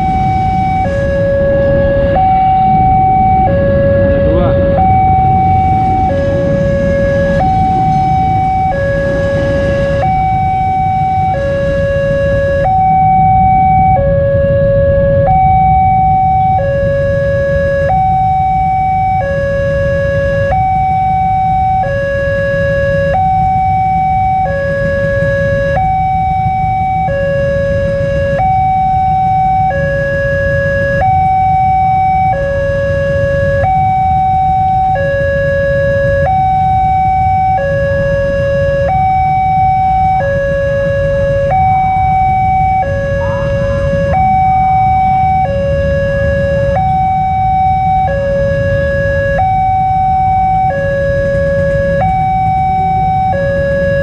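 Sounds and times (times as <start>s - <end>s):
low rumble: 0.0s - 28.0s, 39.0s - 49.2s
level crossing alarm two-tone: 0.0s - 54.0s.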